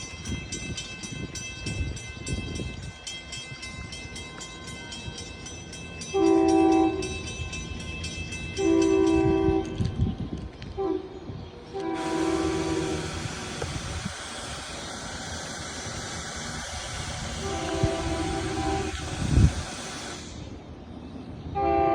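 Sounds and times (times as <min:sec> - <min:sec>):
crossing bell ringing: 0:00.0 - 0:10.2
low rumble of arriving train: 0:00.0 - 0:21.9
train horn blasts: 0:06.1 - 0:07.2, 0:08.6 - 0:10.0, 0:10.7 - 0:13.6, 0:17.3 - 0:20.0, 0:21.5 - 0:21.9.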